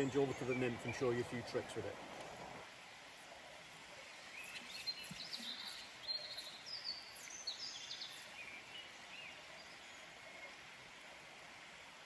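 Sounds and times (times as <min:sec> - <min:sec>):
songbirds chirping and trilling: 0:00.0 - 0:02.0, 0:03.8 - 0:11.0
river water flowing: 0:00.0 - 0:12.0.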